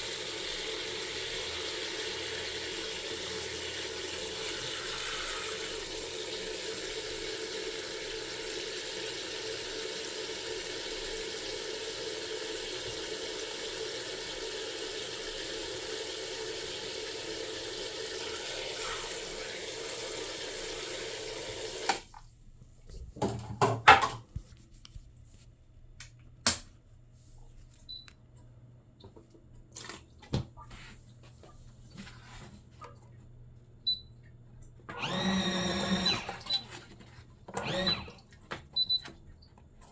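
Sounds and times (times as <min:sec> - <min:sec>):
washing machine motor humming: 0:00.0 - 0:22.0, 0:32.7 - 0:39.9.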